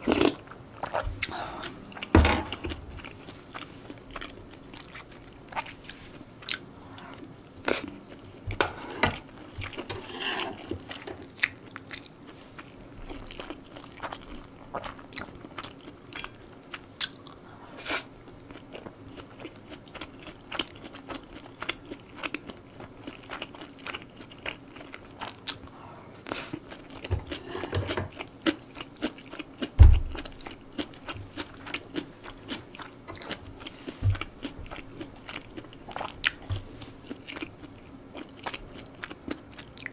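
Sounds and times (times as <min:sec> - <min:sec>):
person chewing and smacking: 0:00.0 - 0:08.5, 0:10.8 - 0:17.4, 0:18.3 - 0:27.4, 0:28.1 - 0:39.9
loud low thump: 0:29.8 - 0:30.2.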